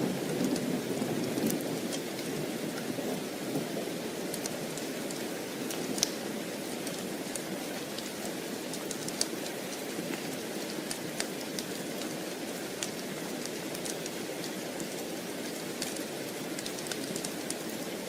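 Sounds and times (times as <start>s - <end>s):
steady rain hiss: 0.0s - 18.0s
sharp little ticks and pops: 4.3s - 6.2s, 6.8s - 12.1s, 15.7s - 17.6s.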